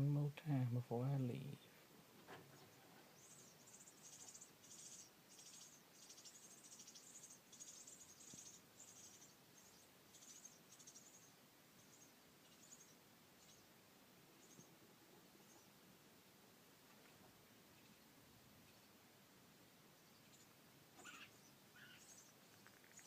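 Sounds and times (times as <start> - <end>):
baby birds chirping: 2.6 - 13.7, 20.0 - 23.0.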